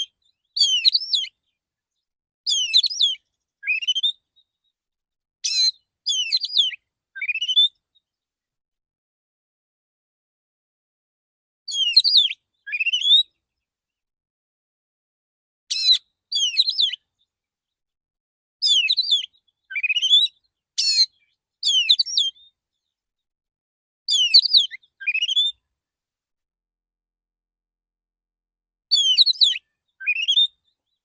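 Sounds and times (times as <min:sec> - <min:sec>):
bird whistling song: 0:00.0 - 0:01.6, 0:02.5 - 0:04.7, 0:05.4 - 0:08.0, 0:11.7 - 0:13.4, 0:15.7 - 0:17.2, 0:18.6 - 0:22.6, 0:24.1 - 0:25.6, 0:28.9 - 0:31.0.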